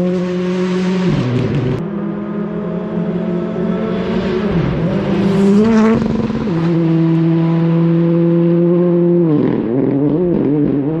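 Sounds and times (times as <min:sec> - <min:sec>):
rally car engine at high revs: 0:00.0 - 0:11.0.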